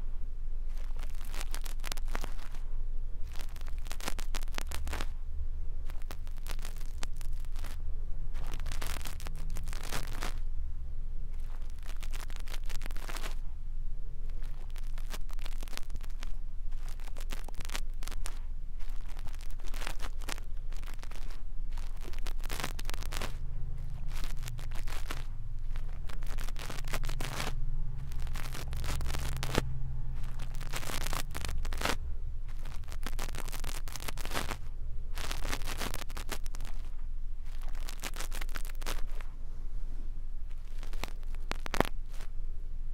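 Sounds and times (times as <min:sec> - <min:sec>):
low rumble: 0:00.0 - 0:42.9
brush scratching over microphone: 0:11.3 - 0:13.5, 0:14.3 - 0:42.4.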